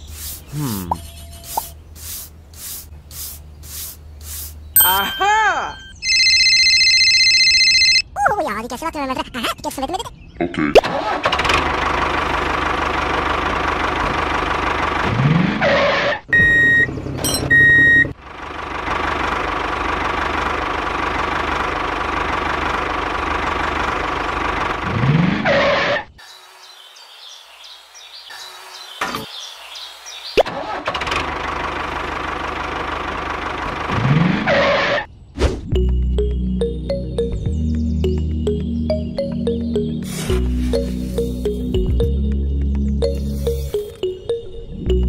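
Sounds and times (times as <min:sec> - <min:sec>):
tractor engine revving: 0:10.8 - 0:26.0, 0:30.4 - 0:35.1.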